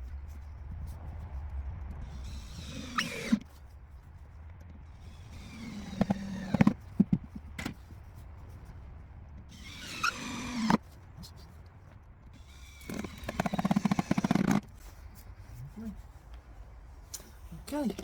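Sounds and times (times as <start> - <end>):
power drill driving screws into wood: 2.3 - 3.4, 5.3 - 6.8, 9.5 - 10.8, 12.4 - 14.7.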